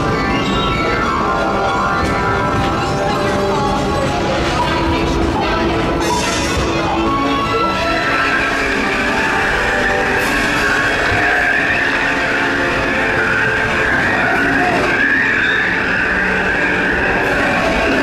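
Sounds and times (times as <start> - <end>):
train wheels squealing: 6.0 - 18.0.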